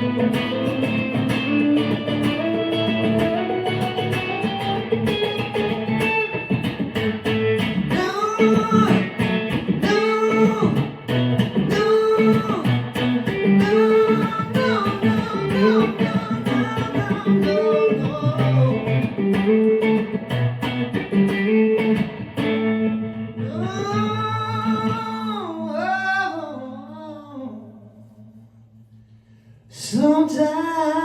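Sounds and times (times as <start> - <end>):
electric guitar solo: 0.0 - 26.8.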